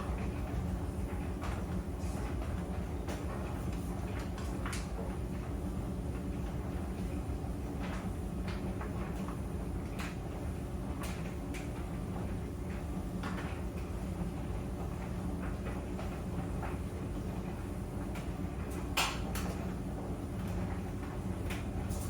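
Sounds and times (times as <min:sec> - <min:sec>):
clothes dryer running: 0:00.0 - 0:22.0.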